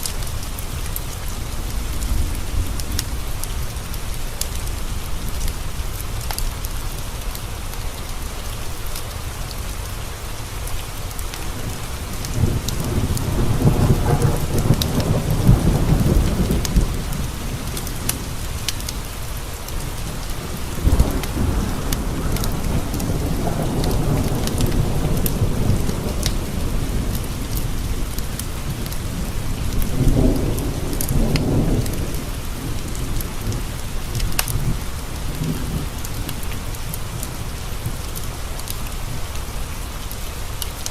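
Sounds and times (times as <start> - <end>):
steady rain: 0.0 - 40.9
rolling thunder: 1.6 - 5.6, 11.4 - 38.6.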